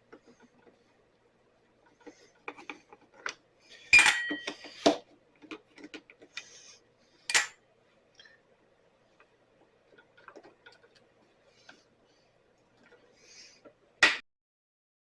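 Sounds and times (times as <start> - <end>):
metal tools clinking: 3.9 - 4.6.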